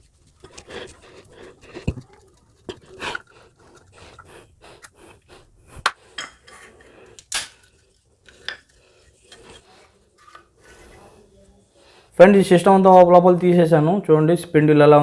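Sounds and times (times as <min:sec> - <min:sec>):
small clicks and scrapes: 0:06.4 - 0:10.9.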